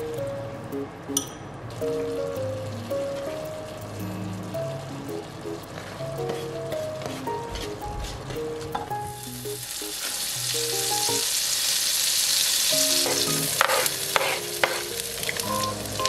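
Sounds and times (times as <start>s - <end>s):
butter sizzling in a wok: 9.1s - 16.0s
knife scraping cutting board: 13.0s - 14.9s.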